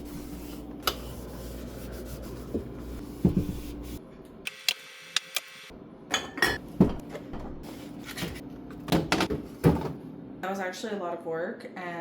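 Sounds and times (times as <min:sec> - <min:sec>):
scrubbing and wiping surfaces: 0:00.0 - 0:04.0.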